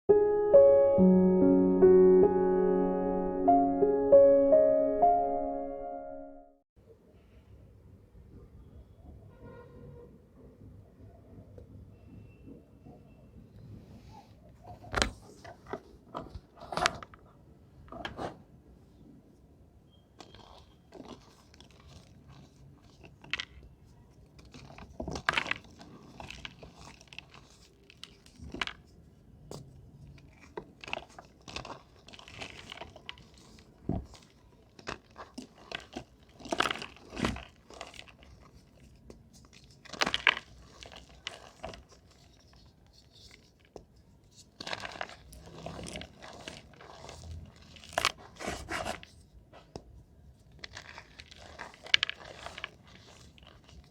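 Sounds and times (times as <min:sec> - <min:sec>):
chalk crunching and crumbling: 0:30.2 - 0:53.9.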